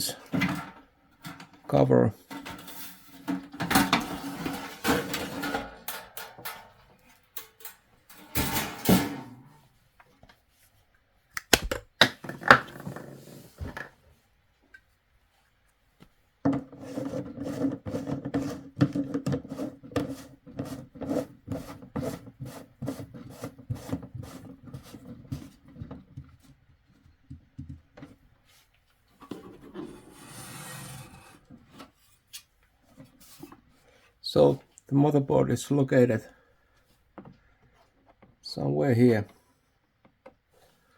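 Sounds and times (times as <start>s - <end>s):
rubbing on plastic casing: 16.6s - 25.8s.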